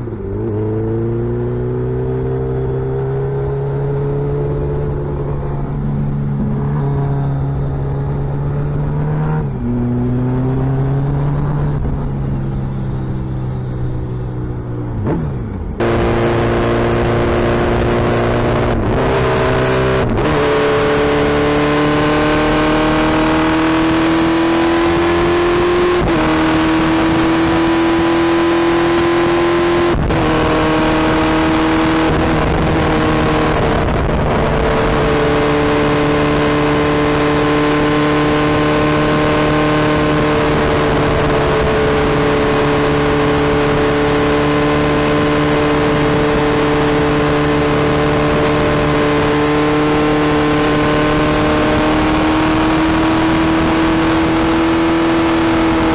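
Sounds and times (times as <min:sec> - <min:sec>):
motorcycle engine accelerating: 0:00.0 - 0:55.9
wind rush: 0:14.9 - 0:55.9.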